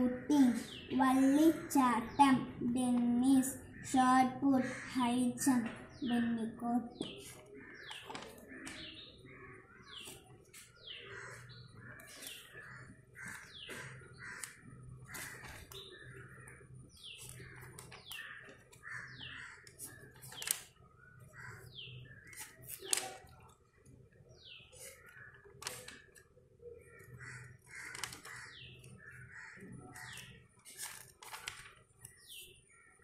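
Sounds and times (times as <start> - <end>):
small birds chirping: 0.0 - 33.0
paper crackles: 7.2 - 8.8, 12.0 - 16.3, 17.0 - 19.0, 19.6 - 20.8, 22.2 - 23.6, 24.8 - 26.3, 27.0 - 29.3, 29.9 - 32.4
paper pages rustling: 7.2 - 8.9, 12.0 - 16.3, 17.0 - 19.0, 19.6 - 20.7, 22.3 - 23.6, 24.8 - 26.2, 27.7 - 29.2, 29.9 - 32.4.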